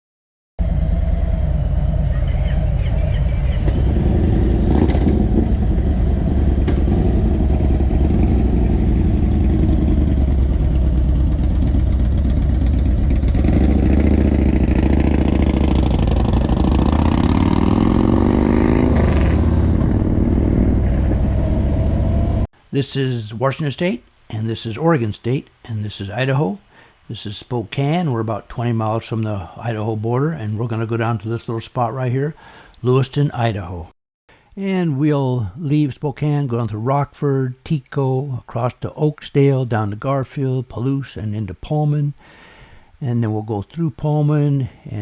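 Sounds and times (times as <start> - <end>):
motorcycle engine running and revving: 0.6 - 22.5.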